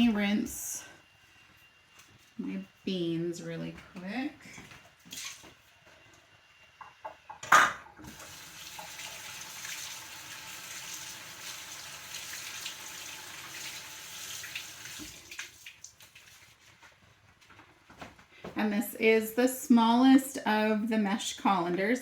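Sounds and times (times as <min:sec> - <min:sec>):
faucet water stream: 0:05.0 - 0:05.5, 0:08.0 - 0:16.6.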